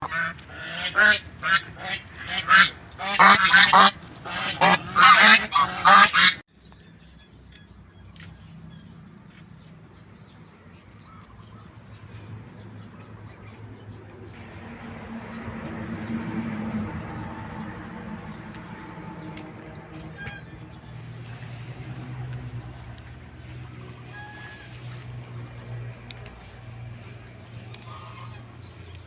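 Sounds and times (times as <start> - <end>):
geese honking: 0.0 - 6.4, 16.0 - 29.0.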